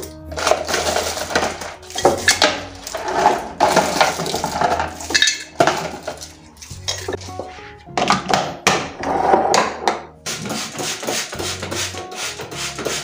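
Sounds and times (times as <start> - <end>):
dishes clattering and clinking: 0.0 - 10.0.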